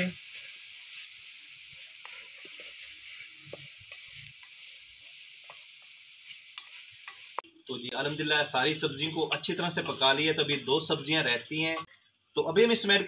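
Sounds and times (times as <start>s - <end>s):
food sizzling in pot: 0.0s - 13.0s
wooden spatula scraping and tapping: 1.8s - 4.6s, 5.4s - 7.5s.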